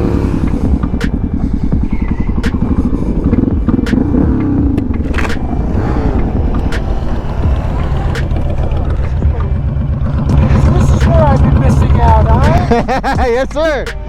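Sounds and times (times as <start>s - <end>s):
motorcycle engine running: 0.0s - 13.8s
sharp clicks: 2.1s - 5.6s.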